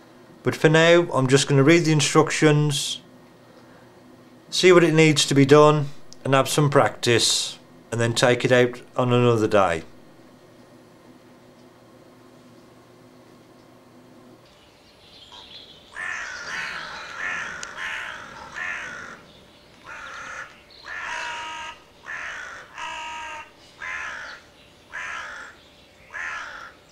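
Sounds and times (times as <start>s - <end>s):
crow cawing: 15.3s - 26.9s.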